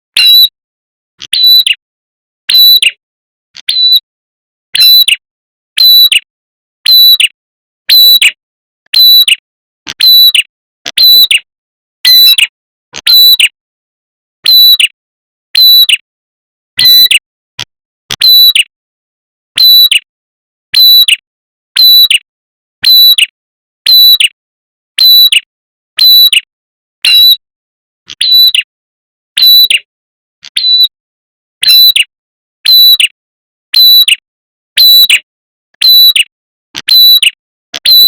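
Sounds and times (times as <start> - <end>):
high-pitched bird call: 0.2 - 0.5, 1.3 - 1.8, 2.5 - 3.0, 3.6 - 4.0, 4.8 - 5.2, 27.0 - 27.4, 28.2 - 28.7, 30.5 - 31.0.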